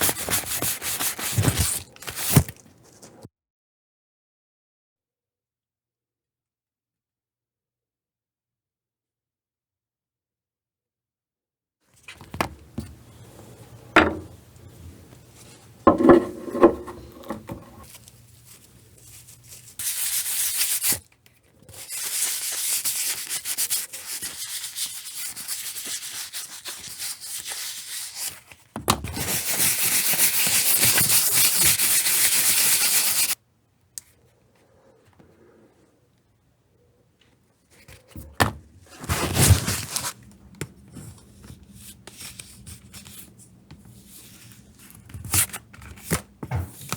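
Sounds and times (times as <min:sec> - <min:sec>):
creaking rub: 0:15.9 - 0:17.9.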